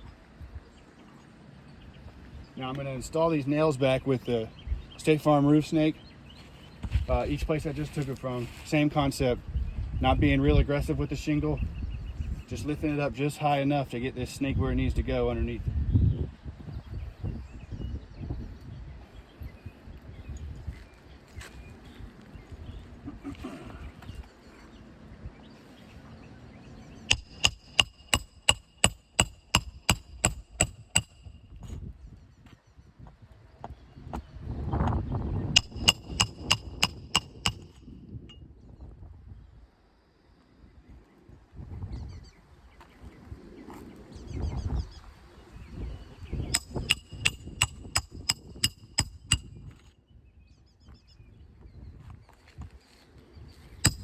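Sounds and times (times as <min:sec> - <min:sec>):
hammer striking metal: 0:27.1 - 0:31.3, 0:35.6 - 0:37.8, 0:46.6 - 0:49.5.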